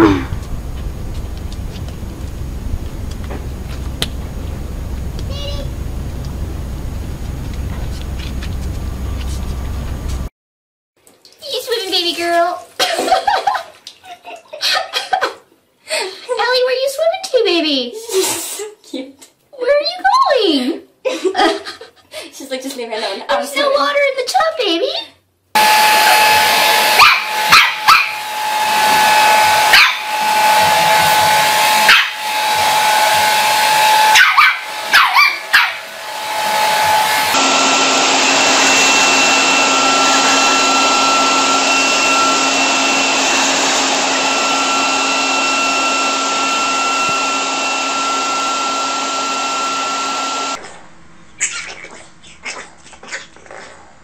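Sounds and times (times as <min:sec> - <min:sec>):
machine hum with whine: 0:00.0 - 0:10.3, 0:25.6 - 0:51.4
dog barking: 0:27.0 - 0:28.2, 0:29.7 - 0:30.0, 0:31.9 - 0:32.2, 0:34.1 - 0:35.8.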